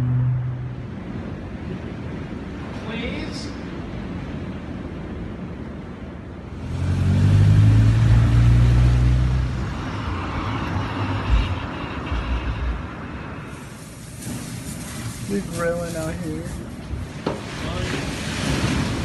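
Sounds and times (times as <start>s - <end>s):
car engine passing by: 6.6s - 13.3s.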